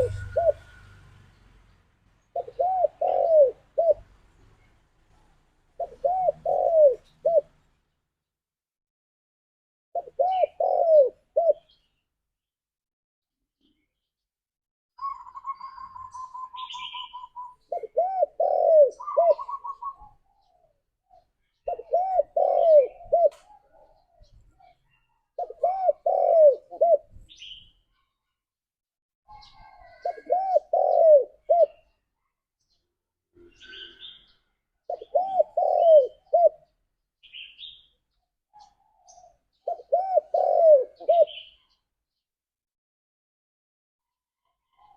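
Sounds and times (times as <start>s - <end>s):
dove cooing: 0.0s - 0.7s, 2.2s - 4.1s, 5.8s - 7.6s, 10.0s - 11.8s, 15.0s - 27.6s, 29.3s - 31.9s, 34.9s - 36.8s, 38.6s - 41.8s
faint small bird chirps: 15.0s - 26.2s, 27.1s - 28.4s, 29.3s - 42.0s, 44.4s - 44.9s.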